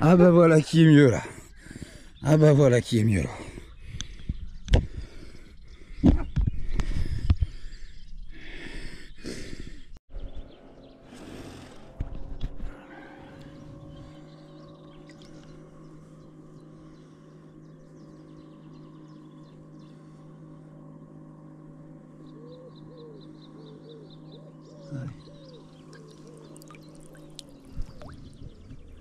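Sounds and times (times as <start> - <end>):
steady low hum: 0.0 - 29.0
low cooing bird calls: 12.6 - 20.0, 22.2 - 29.0
high bird chirps: 25.2 - 29.0.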